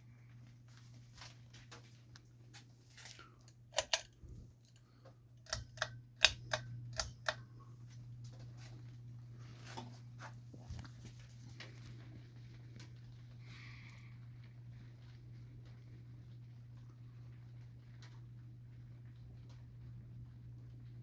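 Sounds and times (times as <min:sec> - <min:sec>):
ceiling fan motor humming: 0:00.0 - 0:21.0
sharp irregular clicks: 0:03.7 - 0:04.8, 0:05.4 - 0:07.4.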